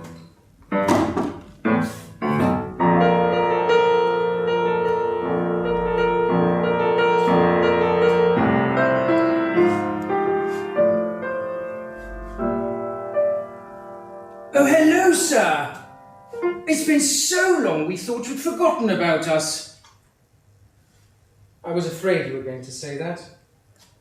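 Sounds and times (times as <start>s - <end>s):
piano chords: 0.0s - 19.2s.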